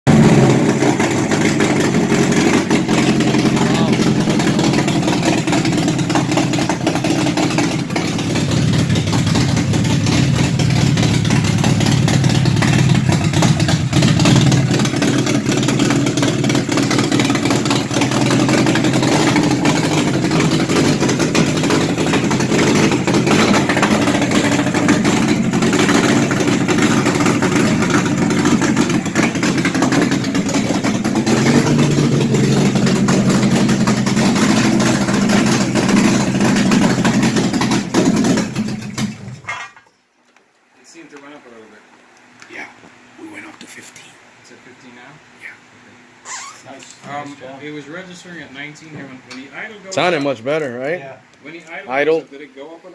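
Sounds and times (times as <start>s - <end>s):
car engine idling: 0.0s - 39.5s.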